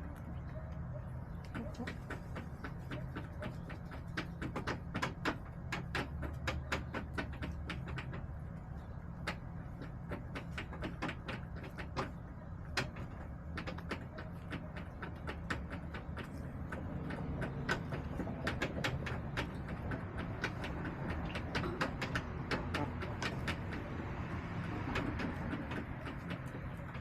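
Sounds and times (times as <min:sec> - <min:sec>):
chickens pecking hard surface: 0:00.0 - 0:27.0.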